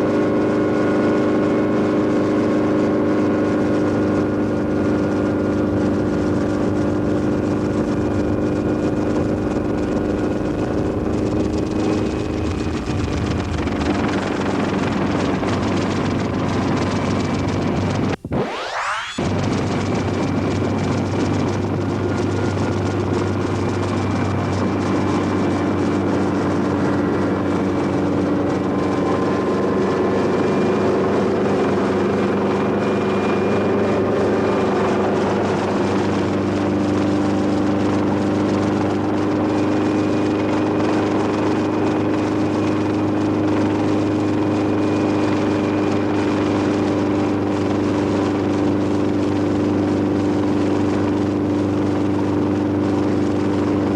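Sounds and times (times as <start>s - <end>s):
helicopter rotor and engine drone: 0.0s - 53.9s
faint high whine: 17.9s - 20.8s.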